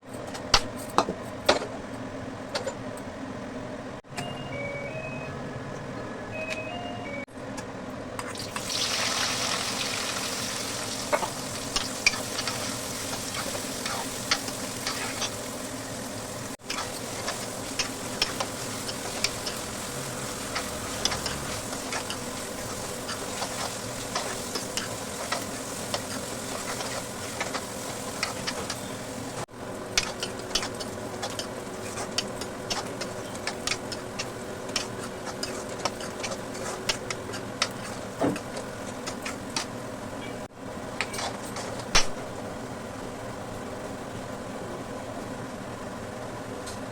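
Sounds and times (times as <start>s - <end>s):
food sizzling in hot oil: 8.3s - 37.0s
spoon stirring and clicking on pan: 16.6s - 19.7s, 30.0s - 39.7s.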